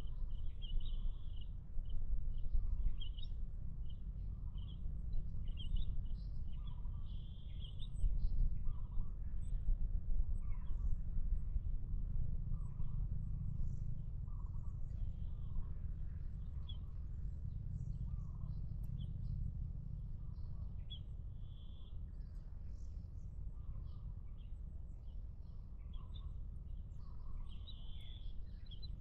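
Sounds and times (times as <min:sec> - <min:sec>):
steady low rumble: 0:07.6 - 0:29.0.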